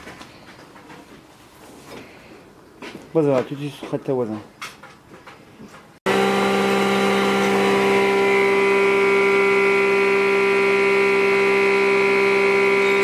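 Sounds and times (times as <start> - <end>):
power tool motor humming and whining: 6.1 - 13.0.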